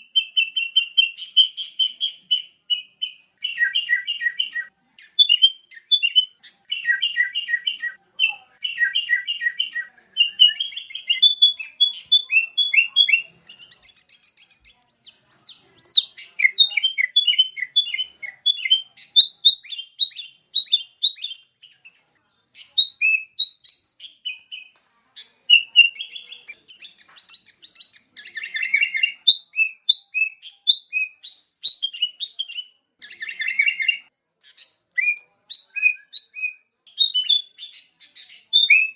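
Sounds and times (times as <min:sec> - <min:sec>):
bird singing and chirping: 0:00.0 - 0:38.9.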